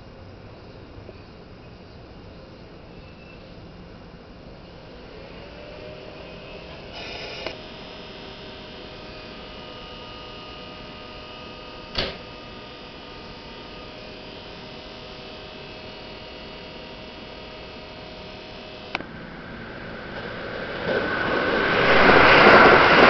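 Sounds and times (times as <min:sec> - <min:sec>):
standing train humming: 0:00.0 - 0:23.0
train brakes: 0:04.8 - 0:12.8.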